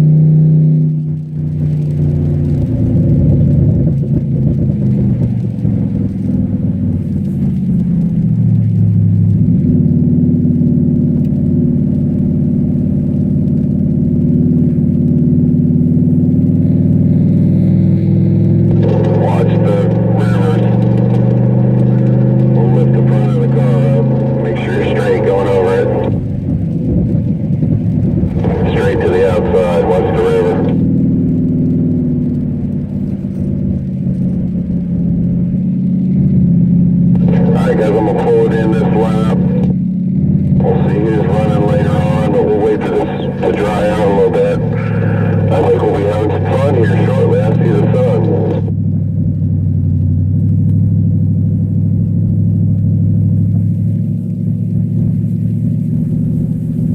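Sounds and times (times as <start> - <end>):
car engine running under load: 0.0 - 56.9.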